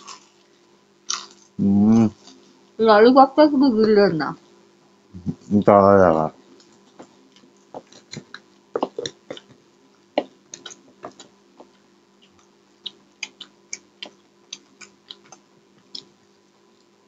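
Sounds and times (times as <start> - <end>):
faint steady hum: 0.0 - 17.0
mouth clicks and chewing: 10.5 - 16.1.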